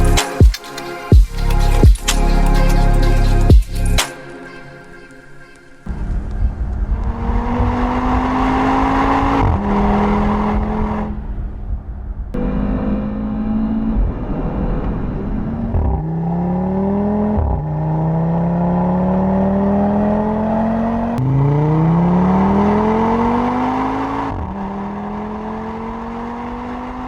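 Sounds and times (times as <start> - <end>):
car engine accelerating through gears: 5.9 - 27.0.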